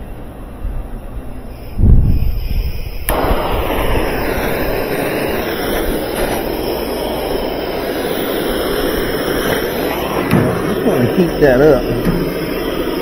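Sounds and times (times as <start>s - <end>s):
hand torch flame hissing: 0.0s - 13.0s
sharp ignition click: 3.0s - 10.9s.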